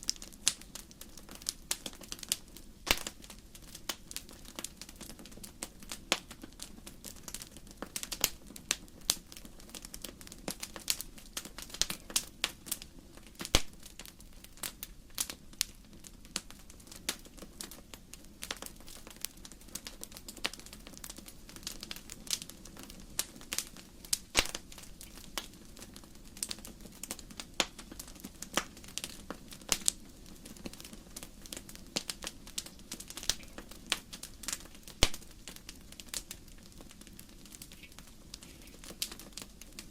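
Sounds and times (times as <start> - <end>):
logs crackling and popping: 0.0 - 39.9.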